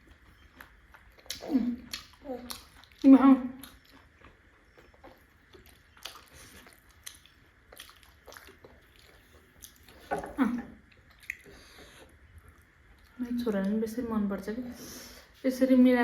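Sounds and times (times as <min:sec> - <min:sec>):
person chewing: 0:00.0 - 0:10.2, 0:10.8 - 0:13.2
wet mouth clicks and smacks: 0:11.1 - 0:11.5.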